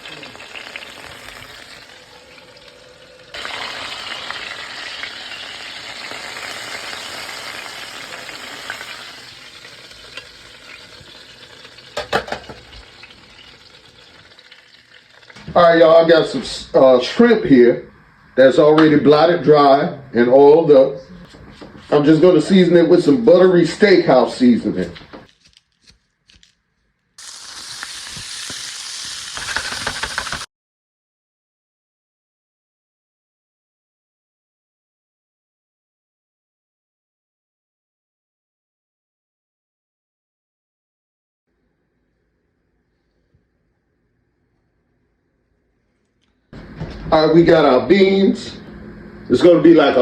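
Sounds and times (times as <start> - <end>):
chicken sizzling in a skillet: 0.0 - 15.5, 27.2 - 30.5.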